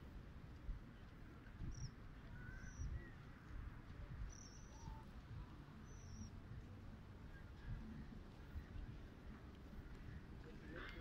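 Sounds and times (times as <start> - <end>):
wind rumble on microphone: 0.0 - 11.0
faint bird chirps: 1.6 - 3.3, 4.2 - 5.2, 5.8 - 6.4.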